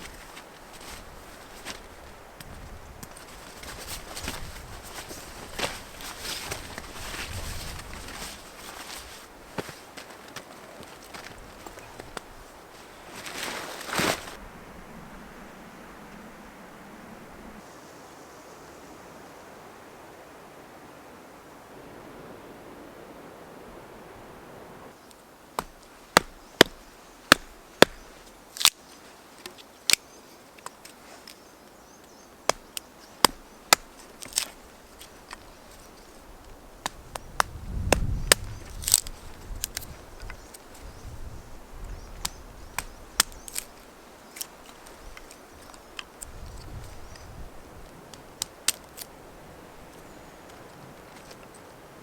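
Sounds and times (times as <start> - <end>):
low rumble: 14.4 - 17.6
sharp strikes on wood: 25.6 - 28.0.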